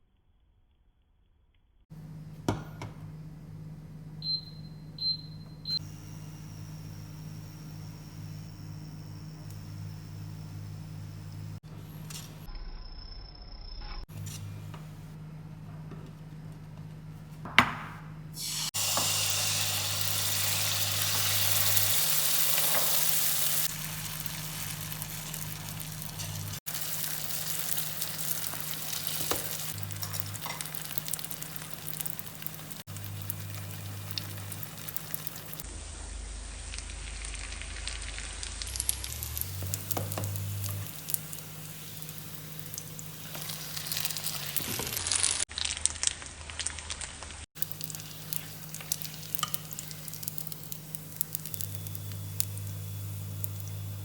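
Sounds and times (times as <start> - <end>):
food sizzling in hot oil: 18.4 - 35.6, 36.3 - 54.0.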